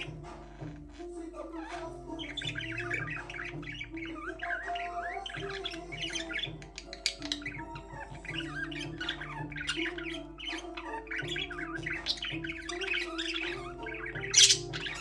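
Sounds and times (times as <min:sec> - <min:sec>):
budgerigars chirping and warbling: 0:00.0 - 0:15.0.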